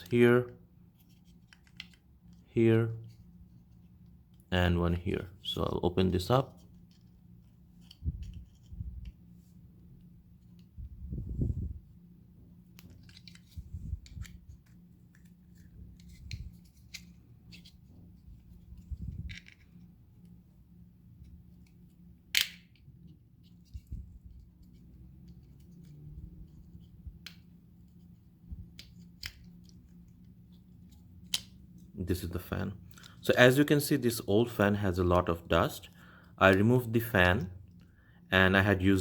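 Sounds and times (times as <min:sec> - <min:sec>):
plastic housing clicking and snapping: 0:22.3 - 0:22.9.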